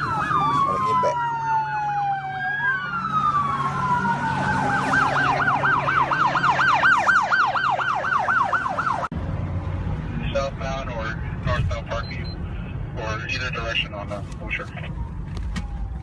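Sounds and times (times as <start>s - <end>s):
police siren wail and yelp: 0.0s - 9.1s, 13.4s - 16.0s
low vehicle hum: 0.0s - 16.0s.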